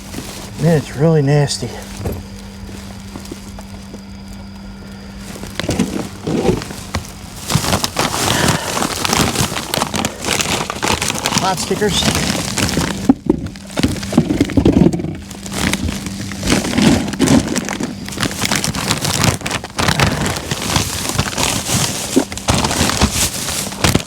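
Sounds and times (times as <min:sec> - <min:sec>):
faint steady hum: 0:00.0 - 0:24.0
plastic packaging crinkling: 0:00.0 - 0:24.0.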